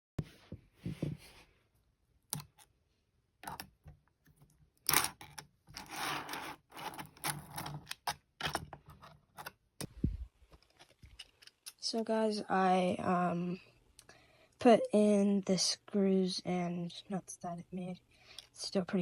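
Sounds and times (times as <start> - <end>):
scraping and rustling: 5.7 - 7.8.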